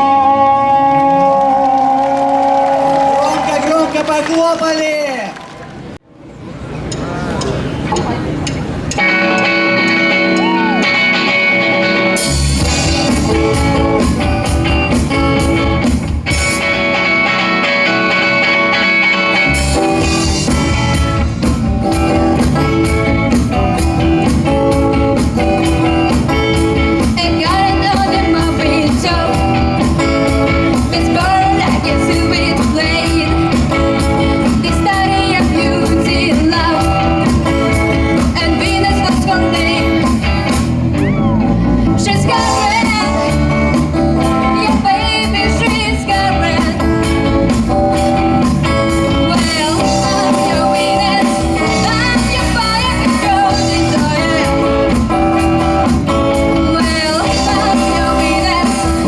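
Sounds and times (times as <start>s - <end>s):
electric guitar chords: 0.0s - 3.2s, 6.8s - 59.0s
drums: 2.2s - 59.0s
person singing: 24.2s - 47.6s, 48.9s - 55.2s, 55.8s - 59.0s.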